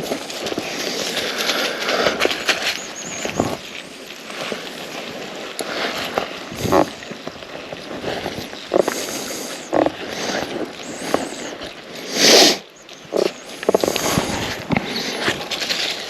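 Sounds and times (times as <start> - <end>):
footsteps crunching through leaves: 0.0 - 16.0
loud rustle: 0.0 - 16.0
dog sniffing: 8.1 - 16.0.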